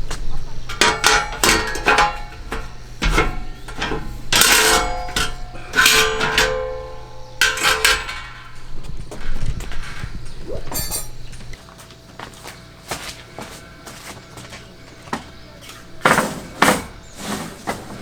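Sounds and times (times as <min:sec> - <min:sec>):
metal objects clanking: 0:00.5 - 0:11.6.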